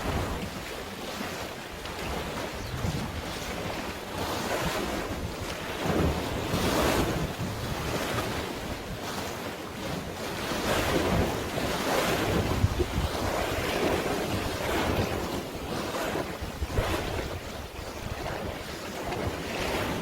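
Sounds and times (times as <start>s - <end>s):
sea waves washing: 0.0s - 20.0s
wind buffeting microphone: 0.0s - 20.0s.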